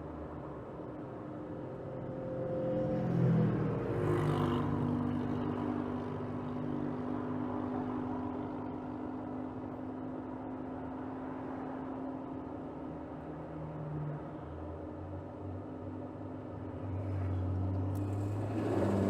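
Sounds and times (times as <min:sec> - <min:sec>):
car engine running: 0:18.0 - 0:19.0.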